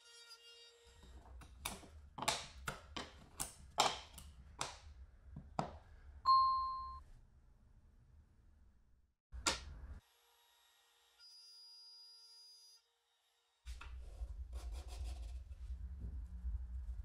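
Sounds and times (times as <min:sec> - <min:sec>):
ringing ding: 0:06.3 - 0:07.0.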